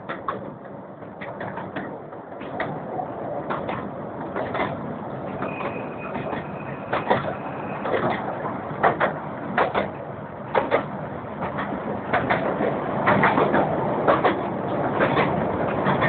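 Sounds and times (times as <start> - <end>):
steam train running: 3.5 - 16.0.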